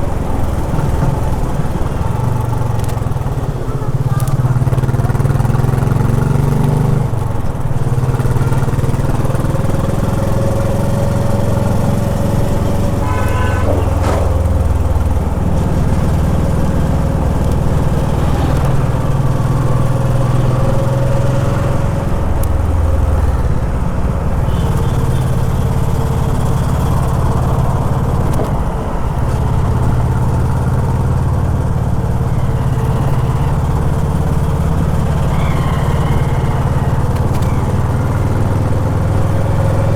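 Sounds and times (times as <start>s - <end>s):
motorcycle engine running: 0.0s - 39.9s
vehicle horn toot: 12.6s - 15.0s, 24.4s - 25.9s.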